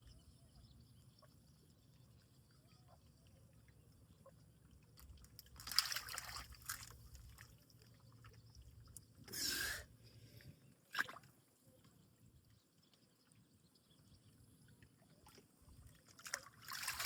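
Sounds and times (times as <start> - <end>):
turtle splashing in water: 5.6 - 7.4, 16.2 - 17.0.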